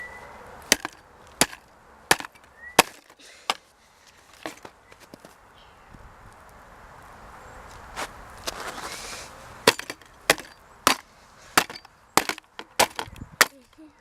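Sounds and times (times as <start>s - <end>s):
plastic casing being struck: 0.7s - 3.6s, 9.7s - 11.0s, 11.6s - 13.6s
scraping: 0.7s - 5.4s, 8.0s - 13.8s.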